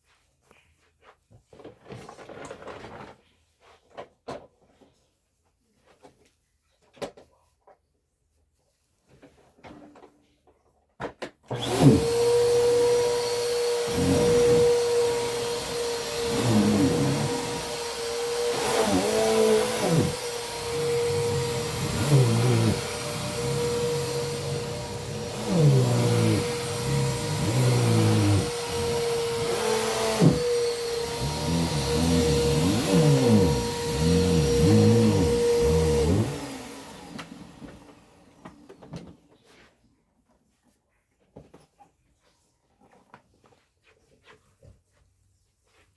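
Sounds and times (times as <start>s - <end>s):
vacuum cleaner motor whining: 11.5s - 39.3s.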